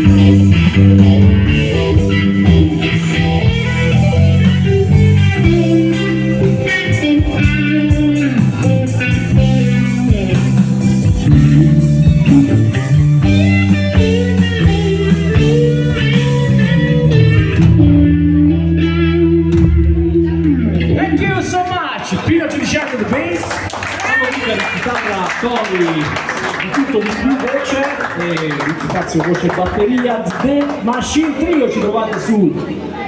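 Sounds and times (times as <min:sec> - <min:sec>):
drums: 0:00.0 - 0:21.6
electric guitar lead with bends: 0:00.0 - 0:21.6
bass guitar: 0:00.0 - 0:21.8.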